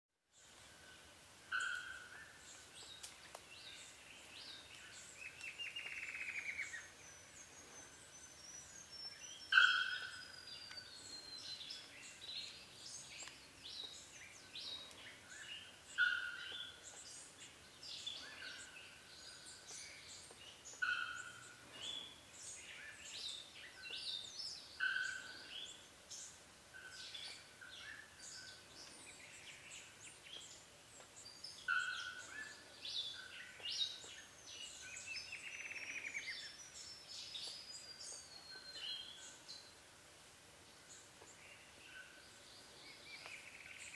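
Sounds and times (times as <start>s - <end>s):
higher bird chirps: 3.7s - 30.1s, 31.3s - 39.7s.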